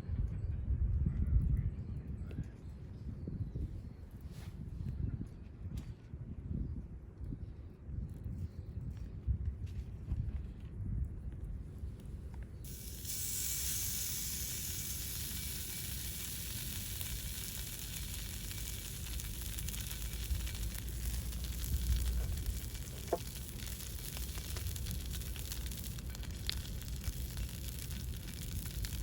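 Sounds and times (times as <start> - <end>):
small fire crackles: 7.5 - 29.0
steak sizzling: 12.7 - 29.0.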